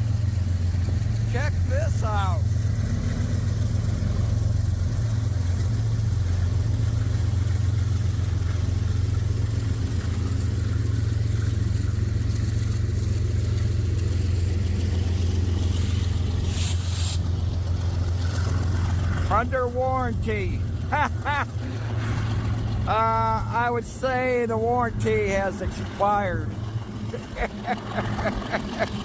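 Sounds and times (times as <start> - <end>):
locomotive diesel engine droning: 0.0 - 29.0
short hisses: 15.7 - 17.3.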